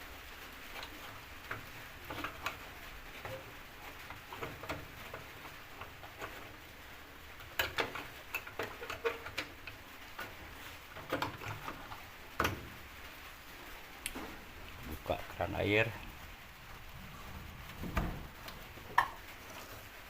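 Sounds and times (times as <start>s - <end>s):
clicks and knocks of hose fittings: 7.4s - 10.3s.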